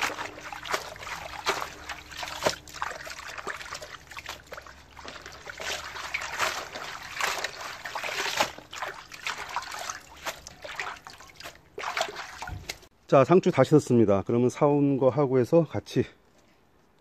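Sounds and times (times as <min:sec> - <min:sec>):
water trickling and splashing: 0:00.0 - 0:12.9.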